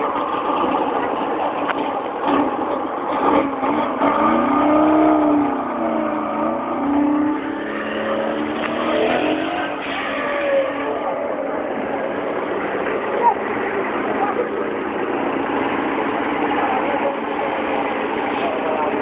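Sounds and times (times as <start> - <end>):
small car engines revving: 0.0 - 19.0.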